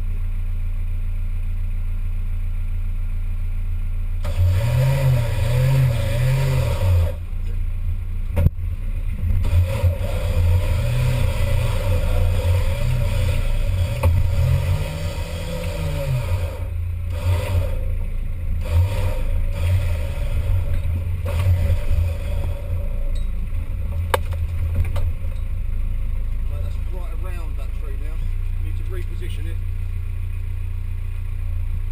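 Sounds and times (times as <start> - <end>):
off-road vehicle engine revving: 4.0 - 31.9.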